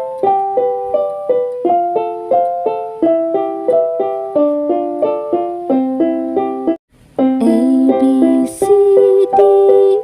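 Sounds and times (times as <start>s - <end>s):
keyboard playing bright tune: 0.0s - 10.0s.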